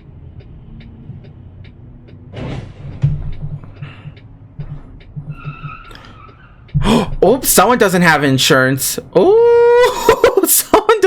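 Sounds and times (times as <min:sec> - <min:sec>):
steady ticking: 0:00.0 - 0:02.3, 0:02.9 - 0:09.2
heavy thump: 0:02.4 - 0:03.6.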